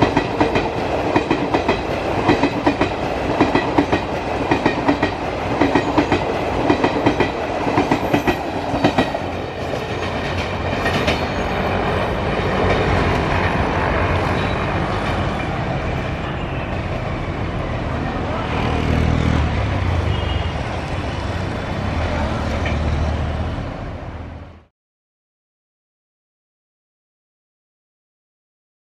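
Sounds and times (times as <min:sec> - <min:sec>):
train wheels clattering on rails: 0:00.0 - 0:17.2, 0:21.9 - 0:23.0
train rumbling: 0:00.0 - 0:24.7.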